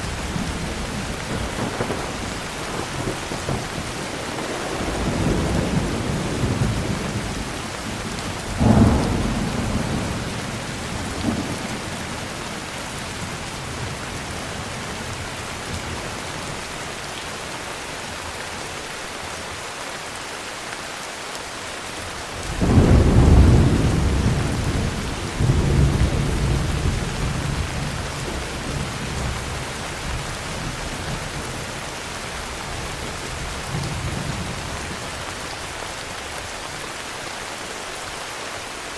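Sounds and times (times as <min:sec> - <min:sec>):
rolling thunder rumble: 0:00.0 - 0:16.3, 0:22.4 - 0:35.2
heavy rain falling: 0:00.0 - 0:38.9
thunder clap: 0:00.2 - 0:12.6, 0:22.5 - 0:31.6.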